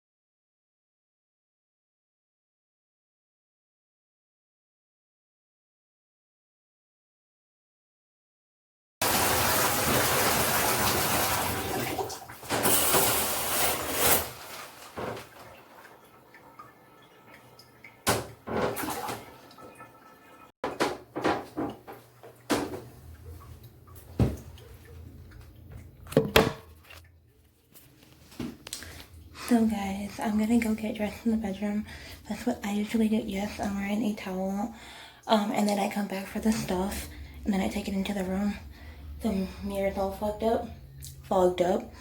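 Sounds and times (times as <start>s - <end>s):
water rushing: 9.0s - 12.4s, 13.7s - 20.5s.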